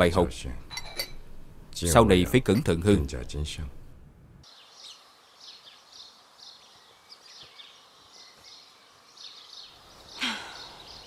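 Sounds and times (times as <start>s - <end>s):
faint background hiss: 0.0s - 11.0s
birds chirping: 4.4s - 11.0s.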